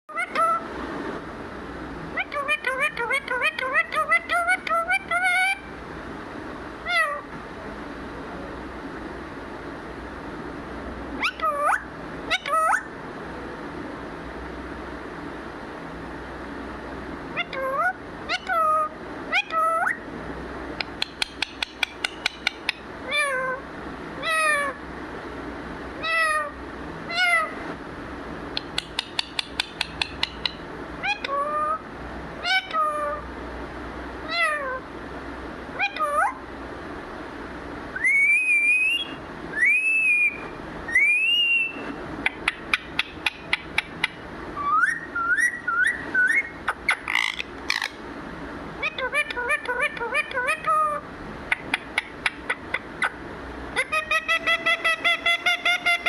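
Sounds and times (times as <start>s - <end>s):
parrot meow-like calls: 0.1s - 0.6s, 2.1s - 5.7s, 6.8s - 7.3s, 11.2s - 12.9s, 17.3s - 20.0s, 21.4s - 23.6s, 24.2s - 24.8s, 26.0s - 27.6s, 29.8s - 31.8s, 32.4s - 33.3s, 34.2s - 34.8s, 35.8s - 36.4s, 44.6s - 48.0s, 48.8s - 51.0s, 53.8s - 56.0s
parrot whistled calls: 2.2s - 5.7s, 6.8s - 7.2s, 11.2s - 12.9s, 17.3s - 20.0s, 20.9s - 23.6s, 28.6s - 31.8s, 32.4s - 33.2s, 35.8s - 36.4s, 37.9s - 48.0s, 48.8s - 53.2s, 53.8s - 56.0s
parrot clicking: 20.8s - 22.8s, 28.6s - 30.6s, 51.5s - 52.9s.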